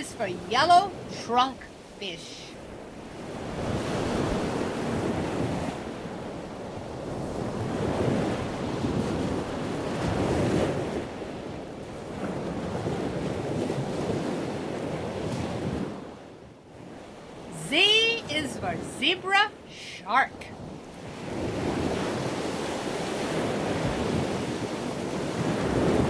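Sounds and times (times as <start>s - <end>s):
rushing water: 0.0s - 11.4s.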